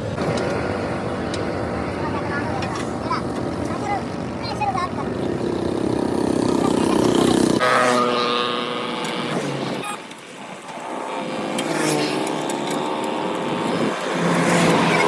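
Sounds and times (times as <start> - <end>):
vehicle engine running: 0.0 - 7.6.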